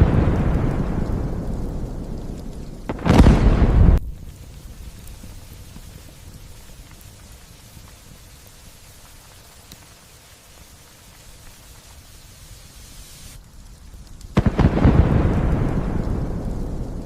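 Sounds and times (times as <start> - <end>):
thunderclap and rumble: 0.0 - 8.2, 13.8 - 17.0
light rain falling: 0.0 - 17.0.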